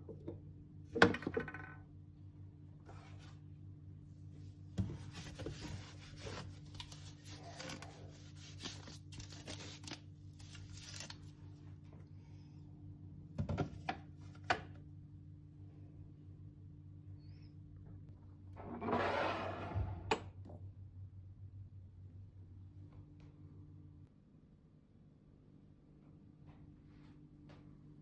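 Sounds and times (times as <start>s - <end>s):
rubbing and scraping on a surface: 4.8s - 11.2s.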